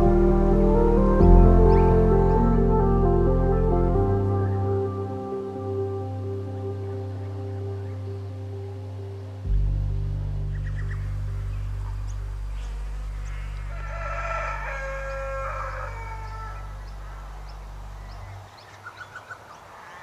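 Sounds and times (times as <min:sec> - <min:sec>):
low music drone: 0:00.0 - 0:18.4
rooster crowing: 0:13.2 - 0:17.5.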